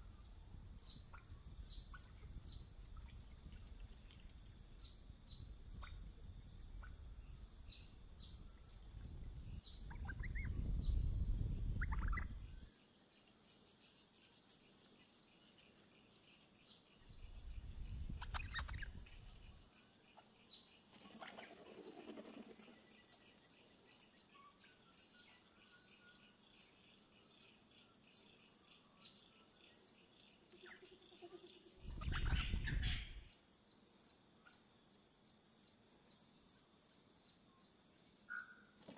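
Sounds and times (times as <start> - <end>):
high bird chirp: 0.0 - 12.7, 17.1 - 20.3, 30.4 - 33.5
bird calls: 0.0 - 12.8, 17.0 - 38.9.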